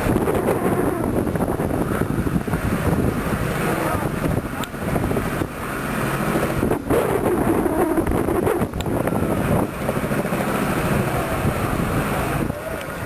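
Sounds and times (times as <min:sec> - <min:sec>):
wind buffeting microphone: 0:00.0 - 0:13.0
faint voices: 0:03.6 - 0:05.2, 0:10.8 - 0:13.0.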